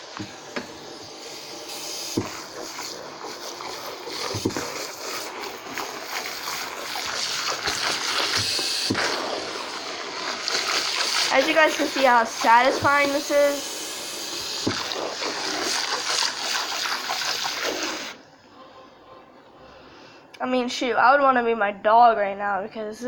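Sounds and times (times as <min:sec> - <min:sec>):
water splashing in a bathtub: 0:01.9 - 0:18.2.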